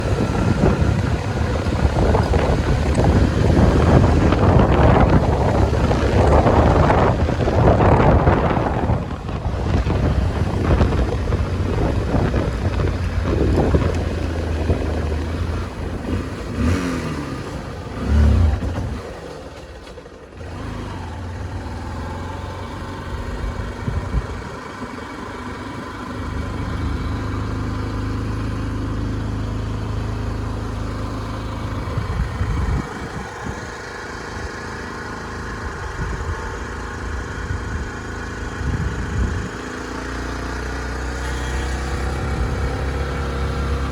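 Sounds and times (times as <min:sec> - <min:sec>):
wind noise: 0:00.0 - 0:19.1, 0:22.9 - 0:24.9, 0:31.0 - 0:39.8, 0:41.1 - 0:43.9
motorcycle engine revving: 0:00.0 - 0:43.9.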